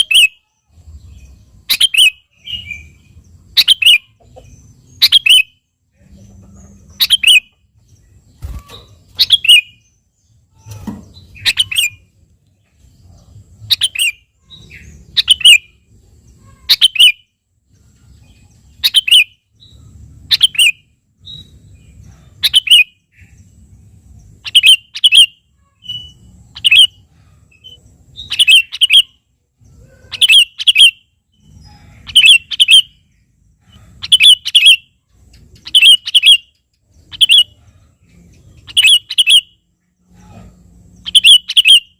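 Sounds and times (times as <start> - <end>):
bulbul calling: 1.7 - 7.6, 8.4 - 12.1, 13.1 - 15.8, 18.8 - 21.5, 22.2 - 23.4, 24.3 - 29.2, 30.0 - 41.9.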